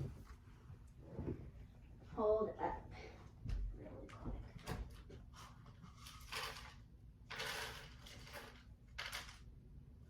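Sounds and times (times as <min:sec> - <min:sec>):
small objects rattling and clattering: 0:05.4 - 0:09.5.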